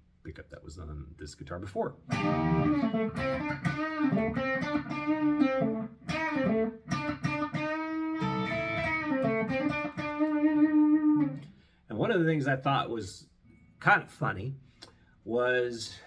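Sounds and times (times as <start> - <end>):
electric guitar melody: 2.1 - 11.5.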